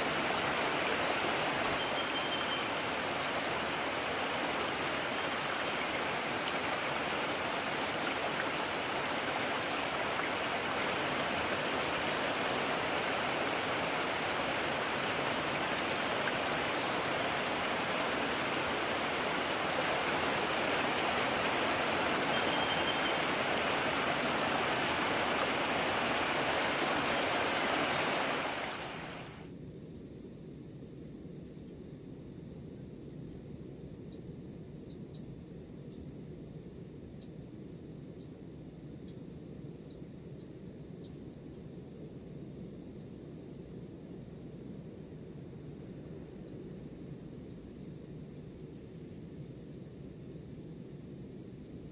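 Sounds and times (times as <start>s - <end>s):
stream rushing: 0.0s - 29.4s.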